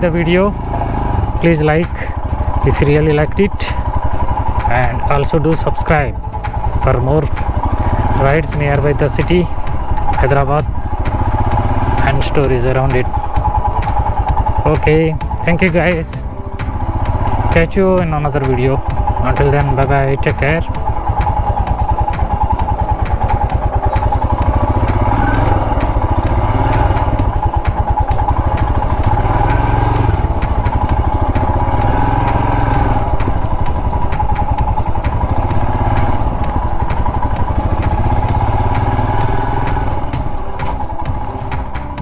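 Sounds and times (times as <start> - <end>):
single-cylinder engine running: 0.0 - 42.0.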